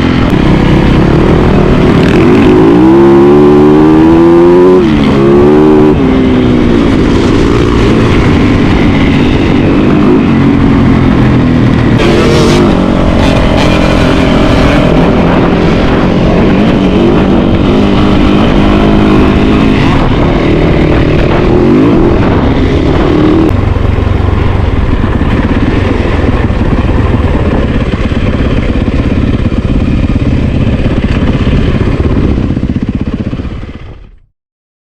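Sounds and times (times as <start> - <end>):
dirt bike engine revving: 0.0 - 23.6.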